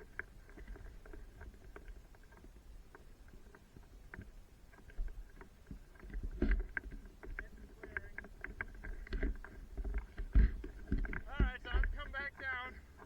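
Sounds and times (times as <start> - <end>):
wind and bumping rumble: 6.0 - 13.0
knocks and rattles: 6.2 - 12.4.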